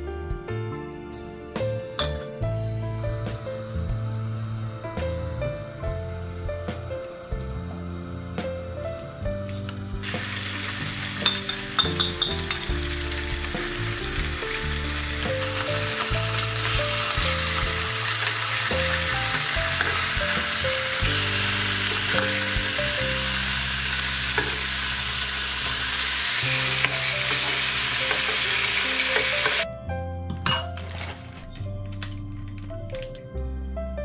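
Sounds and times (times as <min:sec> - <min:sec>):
background music: 0:00.0 - 0:34.0
fish sizzling in a frying pan: 0:10.0 - 0:29.6.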